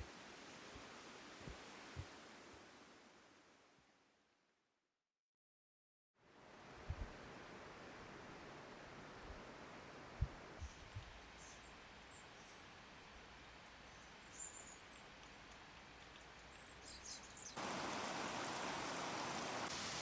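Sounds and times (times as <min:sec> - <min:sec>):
faint bird chirps: 0:13.8 - 0:15.0
steady hiss: 0:17.6 - 0:20.0.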